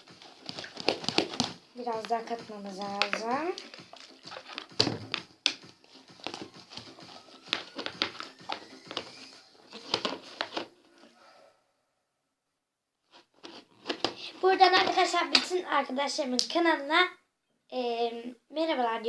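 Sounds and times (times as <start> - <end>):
sticky slime being stirred: 0.0 - 10.6.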